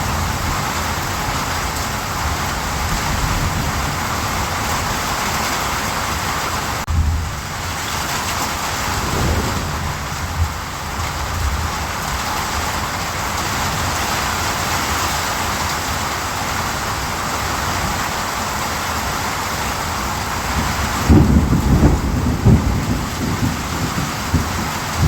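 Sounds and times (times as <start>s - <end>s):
steady rain falling: 0.0s - 25.0s
low rumble of thunder: 8.3s - 12.6s, 20.5s - 25.0s.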